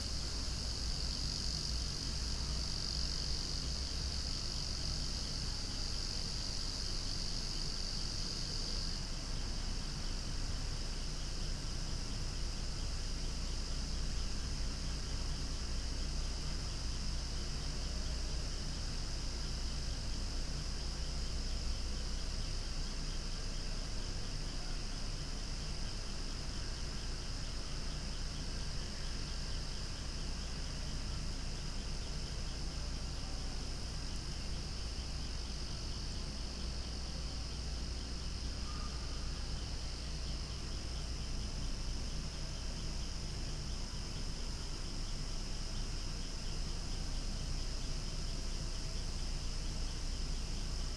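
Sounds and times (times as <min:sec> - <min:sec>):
cicadas singing: 0:00.0 - 0:50.9.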